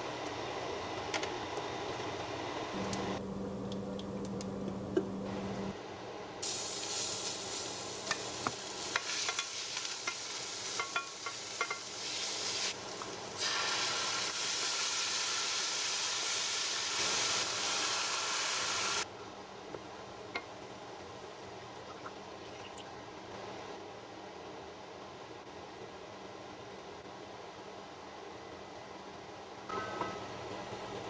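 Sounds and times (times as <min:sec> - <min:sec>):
food sizzling in a pan: 0:06.4 - 0:19.1.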